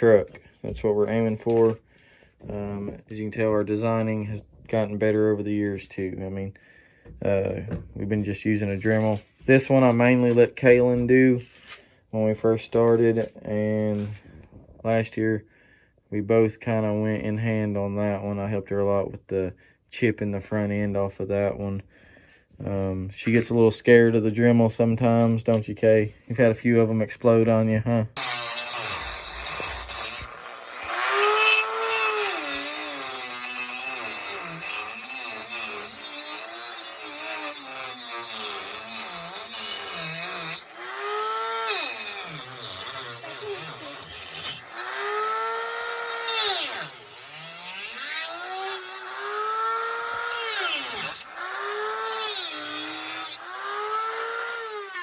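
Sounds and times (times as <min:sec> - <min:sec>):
rotary tool grinding wood: 0:28.2 - 0:55.0.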